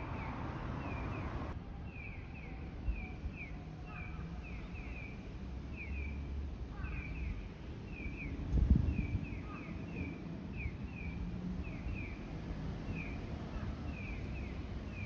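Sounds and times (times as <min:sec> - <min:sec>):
wind rumble on microphone: 0:08.0 - 0:12.1.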